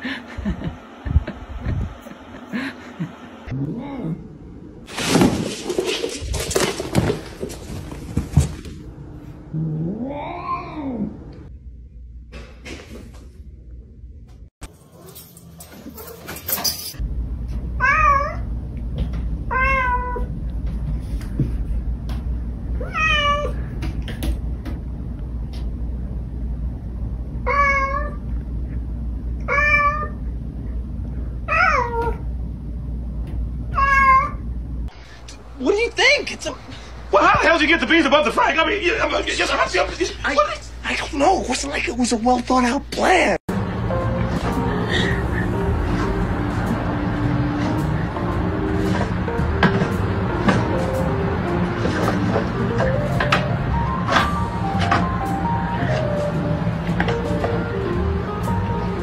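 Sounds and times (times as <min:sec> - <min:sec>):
steady low hum: 0:00.0 - 0:14.5, 0:17.0 - 0:19.6, 0:20.2 - 0:22.9, 0:23.6 - 0:31.5, 0:32.1 - 0:59.0
cat meowing: 0:19.5 - 0:20.3, 0:22.8 - 0:23.6, 0:33.7 - 0:34.4.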